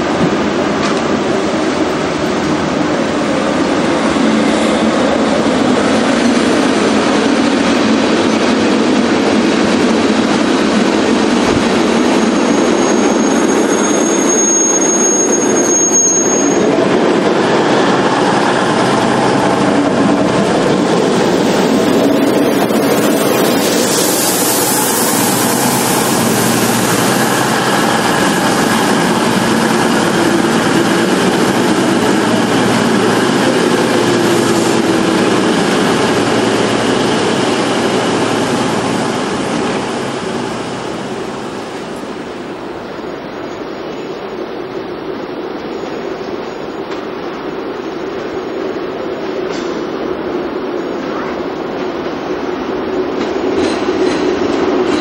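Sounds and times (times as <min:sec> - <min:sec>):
train rumbling past: 0:00.0 - 0:55.0
high wheel squeal: 0:12.0 - 0:16.8.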